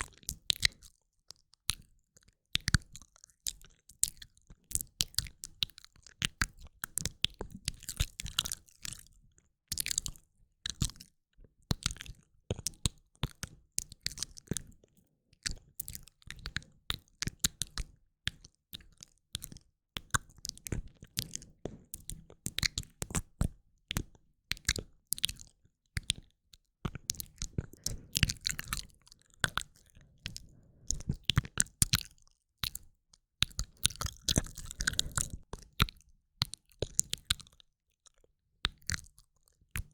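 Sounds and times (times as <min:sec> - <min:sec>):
wet mouth clicks and lip smacks: 0:27.0 - 0:37.6.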